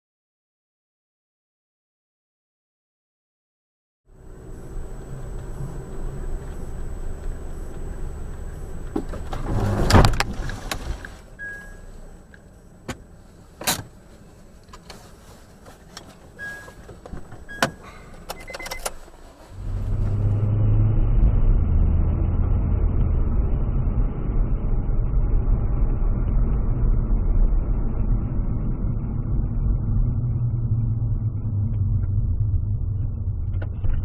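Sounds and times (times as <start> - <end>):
car road and engine noise: 4.1 - 34.0
dull engine and road rumble: 4.1 - 34.0
short beeps: 11.4 - 11.9, 16.4 - 16.8, 17.4 - 18.9.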